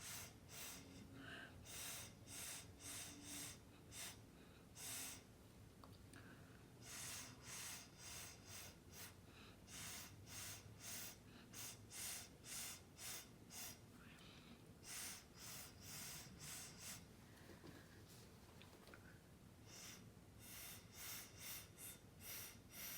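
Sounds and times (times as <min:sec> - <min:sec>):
short puffs of breath: 0:00.0 - 0:05.3, 0:06.2 - 0:17.9, 0:19.6 - 0:22.9.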